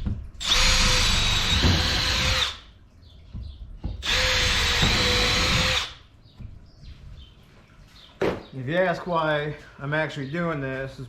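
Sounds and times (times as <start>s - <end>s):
electric drill whining: 0.4s - 2.6s, 4.0s - 6.0s.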